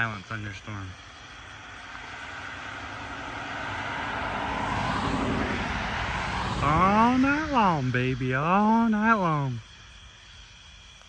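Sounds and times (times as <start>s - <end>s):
vehicle approaching on road: 0.0s - 9.6s.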